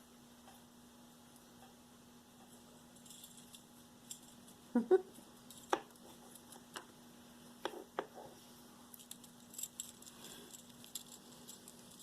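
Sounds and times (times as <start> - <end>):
metal jewelry clicking: 3.0 - 4.6, 8.9 - 12.0.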